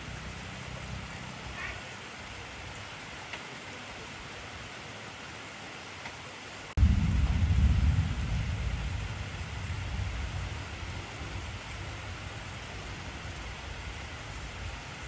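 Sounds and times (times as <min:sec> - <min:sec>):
heavy rain falling: 0:00.0 - 0:15.0
low thunder rumble: 0:06.8 - 0:15.0.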